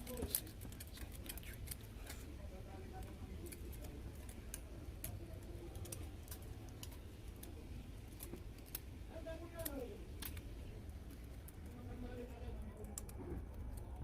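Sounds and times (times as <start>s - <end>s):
light clicks and ticks: 9.5s - 14.0s.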